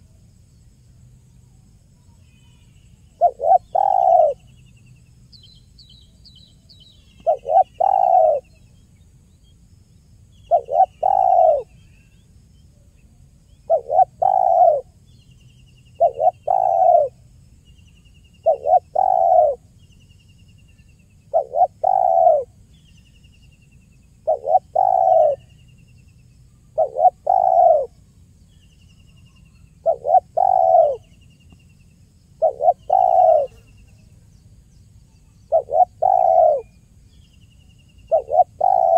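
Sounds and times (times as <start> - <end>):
small bird trilling: 3.2 - 4.4, 7.2 - 8.4, 10.5 - 11.6, 16.0 - 17.1, 18.5 - 19.6, 24.3 - 25.4, 26.8 - 27.9, 29.9 - 31.0, 32.4 - 33.6, 35.4 - 36.6, 38.1 - 38.9
dove cooing: 3.2 - 4.5, 7.2 - 8.5, 10.5 - 11.7, 13.7 - 15.0, 16.0 - 17.2, 18.4 - 19.6, 21.3 - 22.6, 24.2 - 25.5, 26.8 - 28.0, 29.8 - 31.1, 32.4 - 33.6, 35.4 - 36.8, 38.1 - 38.9.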